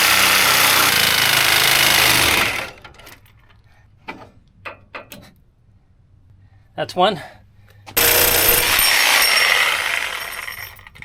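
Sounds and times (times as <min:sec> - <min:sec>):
reciprocating saw cutting steel bolt: 0:08.0 - 0:10.8.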